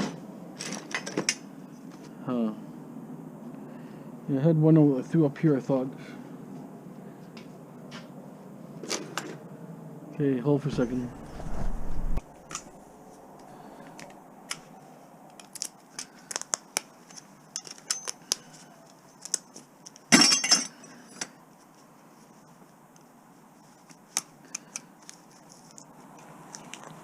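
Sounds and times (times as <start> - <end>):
low rumble: 10.6 - 13.4.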